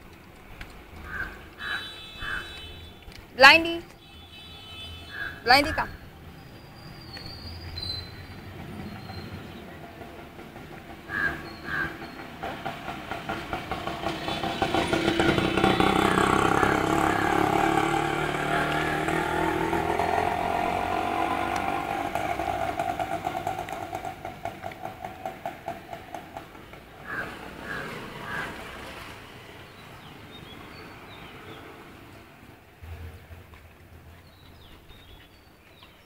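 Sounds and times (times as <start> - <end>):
train passing with clatter: 8.0 - 31.2.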